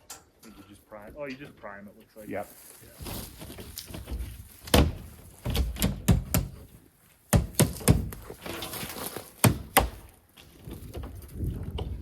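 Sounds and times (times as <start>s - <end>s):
wooden crate knocked and pried apart: 3.0s - 6.7s, 7.3s - 10.1s.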